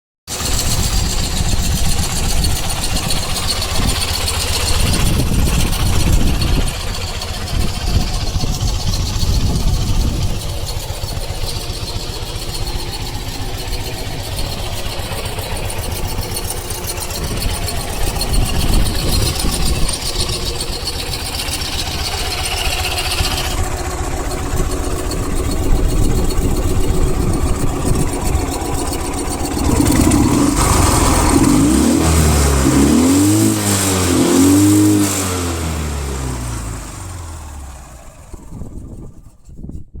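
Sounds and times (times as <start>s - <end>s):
motorcycle engine revving: 0.3s - 39.6s.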